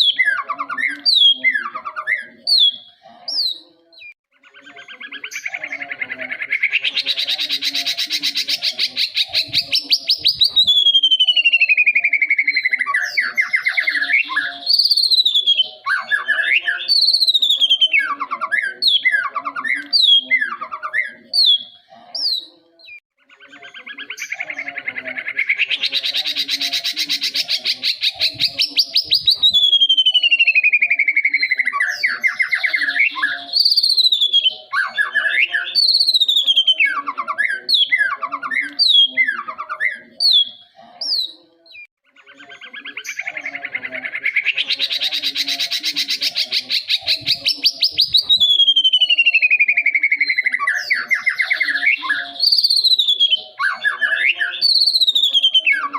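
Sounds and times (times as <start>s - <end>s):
bird singing whistled phrases: 9.1s - 21.8s, 25.4s - 40.6s, 41.2s - 55.9s.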